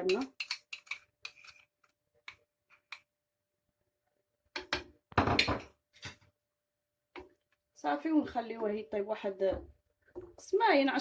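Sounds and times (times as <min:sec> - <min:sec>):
cookware knocking and clattering: 0:04.6 - 0:06.2.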